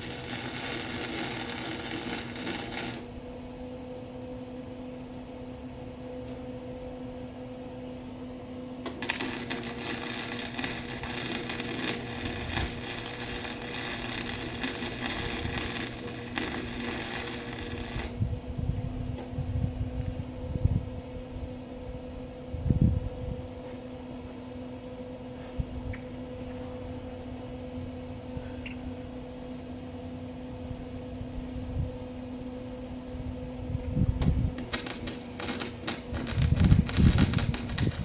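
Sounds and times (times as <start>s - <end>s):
welding arc crackling: 0.0s - 3.2s, 8.8s - 18.2s, 34.6s - 38.0s
steady low hum: 0.0s - 38.0s.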